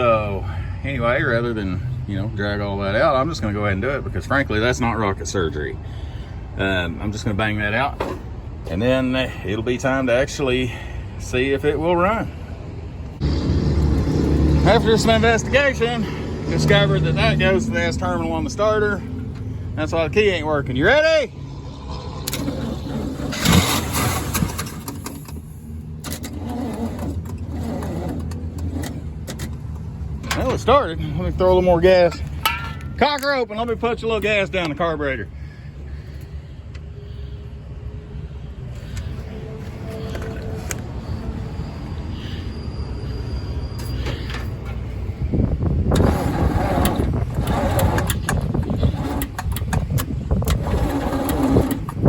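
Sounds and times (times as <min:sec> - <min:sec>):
engine running steadily: 0:04.0 - 0:52.0
engine cranking and starting: 0:22.1 - 0:30.8, 0:45.8 - 0:52.0.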